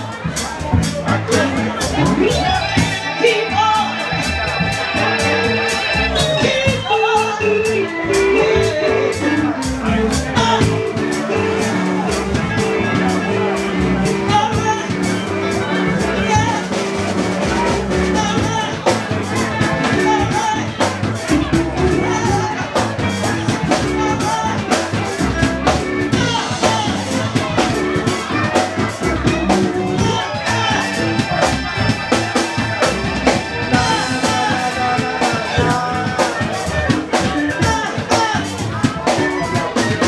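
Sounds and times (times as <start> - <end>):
person singing: 0.0 - 16.8, 17.4 - 40.0
drum kit steady beat: 0.0 - 40.0
guitar: 0.0 - 40.0
long held chords: 1.2 - 14.8.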